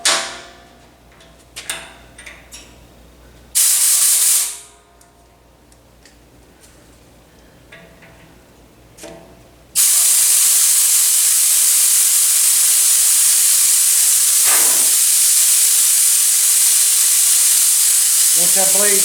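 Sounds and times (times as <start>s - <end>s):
compressed air hissing: 3.6s - 4.7s, 9.8s - 19.0s.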